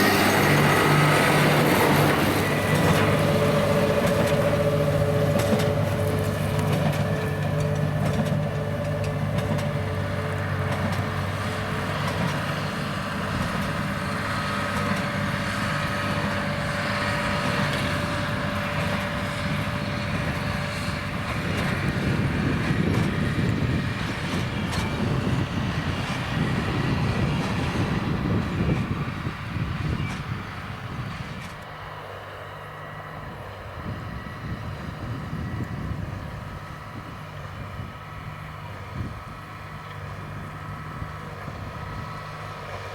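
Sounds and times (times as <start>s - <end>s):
baler machinery clattering: 0.0s - 31.7s
tractor diesel engine under load: 0.0s - 42.9s.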